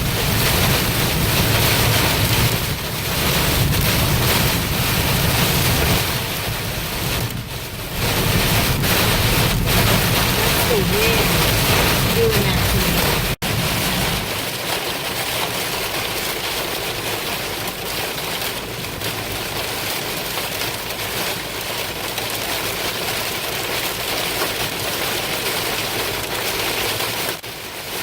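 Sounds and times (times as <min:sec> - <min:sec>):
heavy rain hitting car: 0:00.0 - 0:28.0
road noise: 0:00.0 - 0:28.0.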